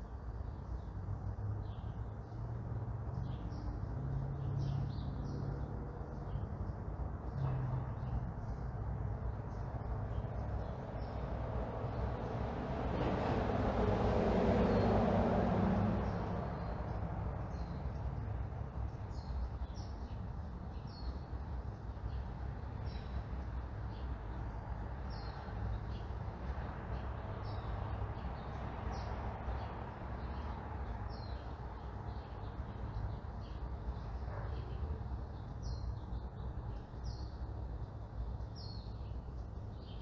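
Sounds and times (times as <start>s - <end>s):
low traffic rumble: 0.0s - 40.0s
vehicle passing: 10.1s - 18.9s
small birds chirping: 16.0s - 40.0s.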